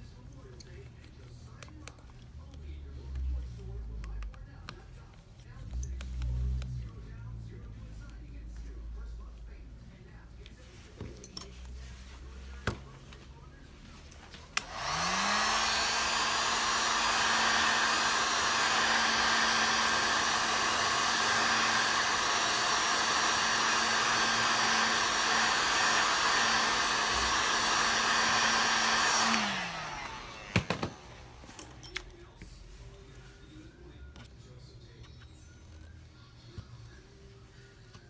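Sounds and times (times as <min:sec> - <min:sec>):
hot-air blower running: 0:14.6 - 0:31.9.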